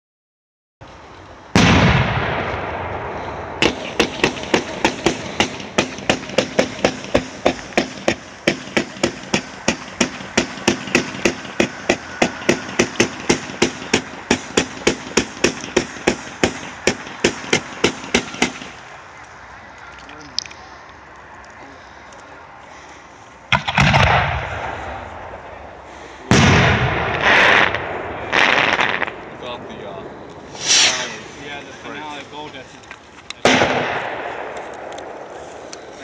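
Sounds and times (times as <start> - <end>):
fireworks firing sharp shots: 1.5 - 18.9, 23.5 - 25.5, 26.3 - 29.3, 30.5 - 31.4, 33.4 - 35.2
loud firework bang: 1.6 - 18.7, 26.3 - 29.2, 30.5 - 31.2, 33.5 - 34.6.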